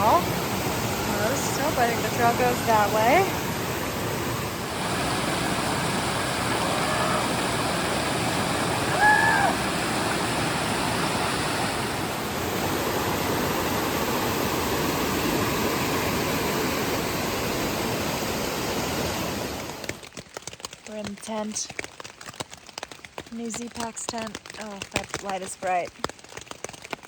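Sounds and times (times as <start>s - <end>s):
rushing stream water: 0.0s - 20.8s.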